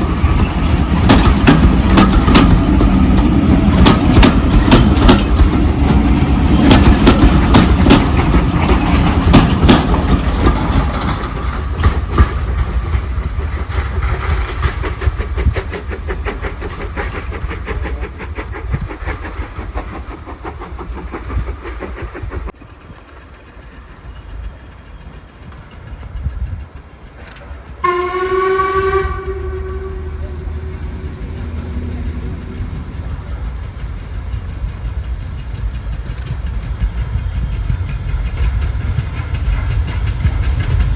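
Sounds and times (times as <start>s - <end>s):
train wheels clattering over rails: 0.0s - 40.9s
steam train whistle blast: 27.8s - 31.1s.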